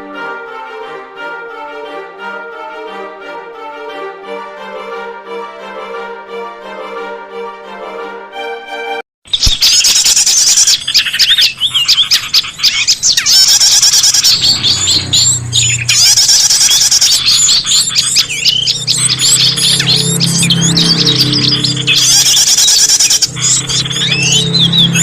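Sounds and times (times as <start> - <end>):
small songbirds chirping: 9.3 - 25.0.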